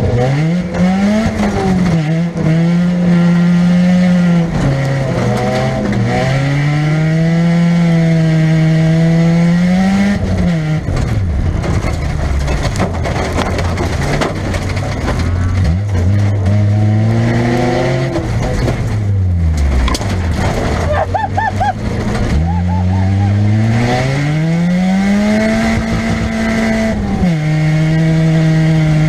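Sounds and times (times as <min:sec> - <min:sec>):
car engine revving: 0:00.0 - 0:29.0
metal crunching and knocks: 0:10.4 - 0:16.6, 0:18.0 - 0:21.2.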